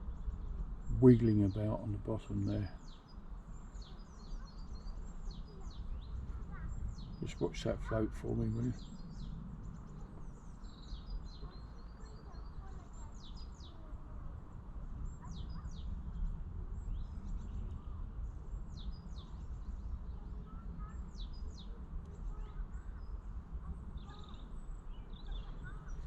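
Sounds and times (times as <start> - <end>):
wild birds singing: 0.0 - 26.0.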